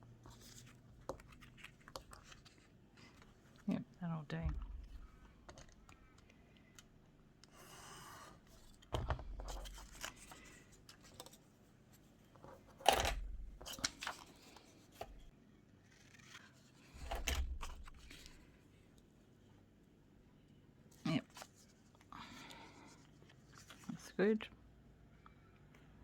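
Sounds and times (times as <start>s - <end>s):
paper rustling and tearing: 15.8s - 18.4s.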